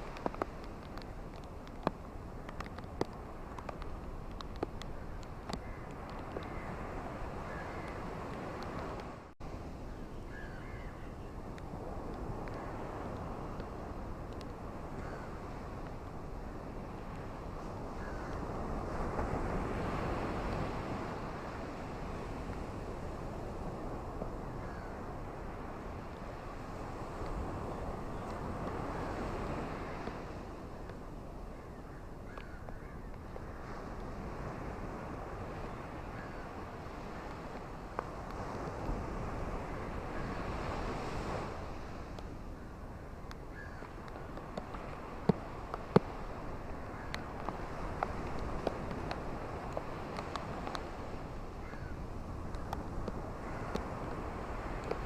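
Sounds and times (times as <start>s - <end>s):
rain: 0.0s - 6.6s
sharp ticks of raindrops: 0.0s - 6.6s, 11.5s - 14.6s, 47.1s - 50.9s
surf washing on beach: 0.0s - 55.0s.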